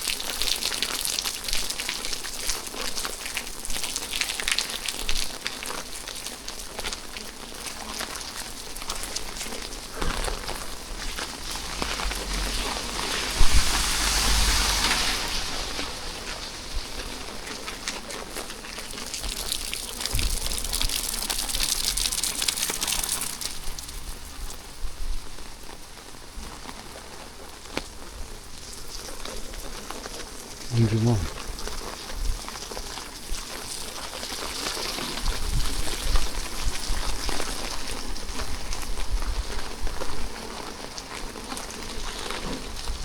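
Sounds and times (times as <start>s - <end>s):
rain falling: 0.0s - 43.0s
low rumble: 10.8s - 17.8s.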